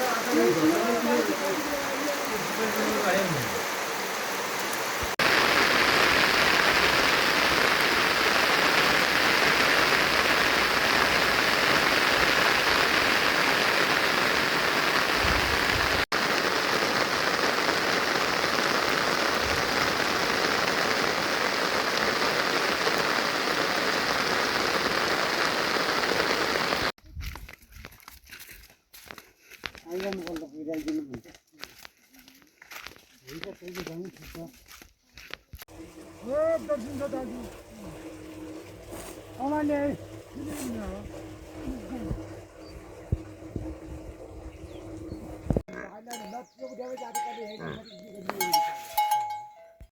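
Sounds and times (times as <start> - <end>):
rain falling: 0.0 - 26.9, 35.6 - 45.7.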